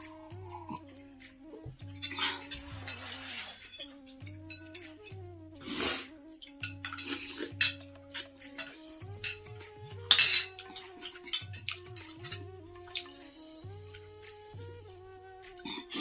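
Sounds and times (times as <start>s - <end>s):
spoon clinking against bowl: 0.0s - 5.8s, 6.4s - 13.3s
soft background music: 0.0s - 16.0s.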